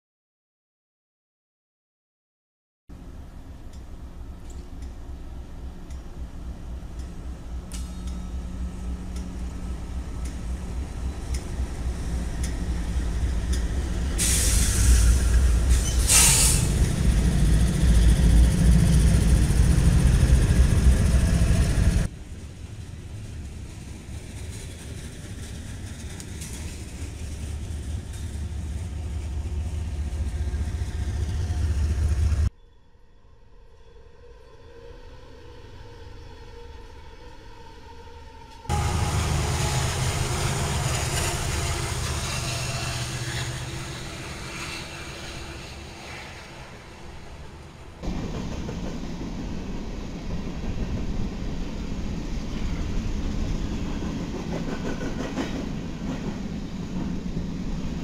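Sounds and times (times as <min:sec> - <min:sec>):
freight train rumbling past: 0:02.9 - 0:32.5, 0:38.3 - 0:58.0
short air hisses: 0:14.2 - 0:16.8.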